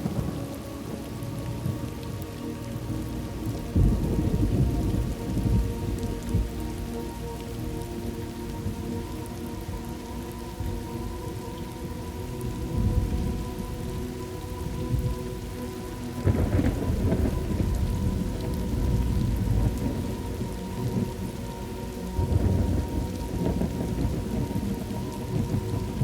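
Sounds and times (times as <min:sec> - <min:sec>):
steady rain: 0:00.0 - 0:26.0
rolling thunder: 0:03.4 - 0:06.6, 0:16.2 - 0:21.1, 0:22.2 - 0:26.0.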